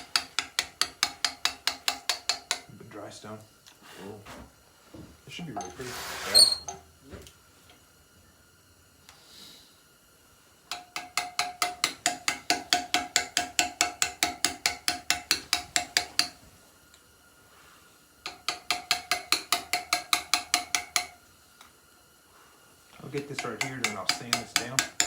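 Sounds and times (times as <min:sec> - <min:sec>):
hammer on steel chisel ringing: 0:23.4 - 0:25.0.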